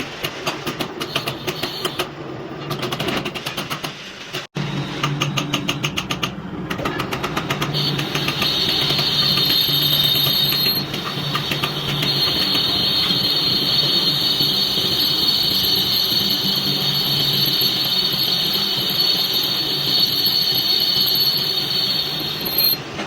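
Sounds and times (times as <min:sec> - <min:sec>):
high-pitched hiss with whistle: 0:01.0 - 0:02.1, 0:07.8 - 0:22.8
metal lathe humming: 0:07.7 - 0:22.8.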